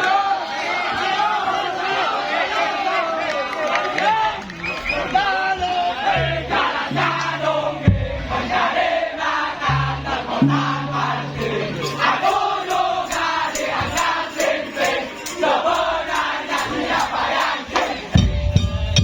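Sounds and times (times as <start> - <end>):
crowd shouting and chanting: 0.0 - 19.0
music: 6.0 - 19.0.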